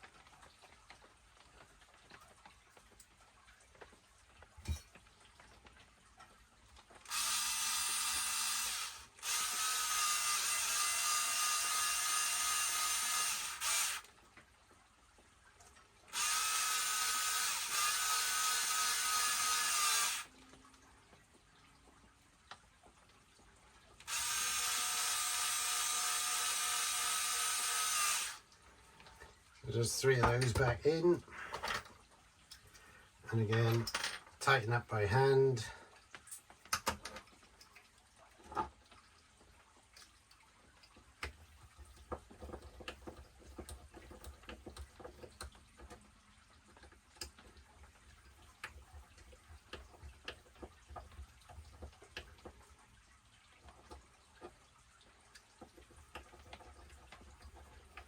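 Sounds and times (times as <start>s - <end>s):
cordless power screwdriver running: 7.1s - 14.0s, 16.2s - 20.3s, 24.1s - 28.4s.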